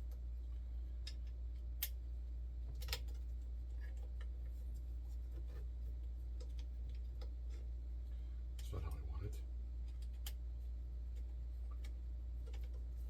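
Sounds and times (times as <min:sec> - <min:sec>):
steady low hum: 0:00.0 - 0:13.0
parts and tools clicking and tapping: 0:02.7 - 0:04.4.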